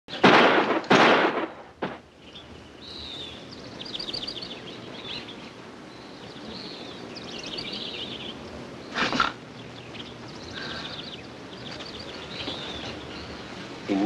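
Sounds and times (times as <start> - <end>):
sharp crack: 0.1 - 2.1
steady background hiss: 0.1 - 14.0
small birds chirping: 1.8 - 14.0.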